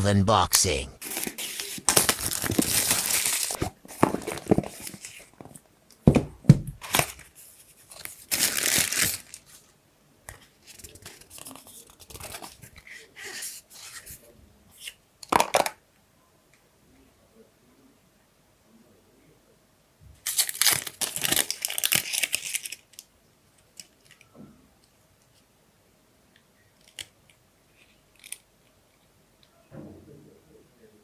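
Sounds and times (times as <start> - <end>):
plastic wrap tearing and crinkling: 1.0 - 5.3, 6.8 - 7.3, 7.9 - 9.6, 20.2 - 23.1.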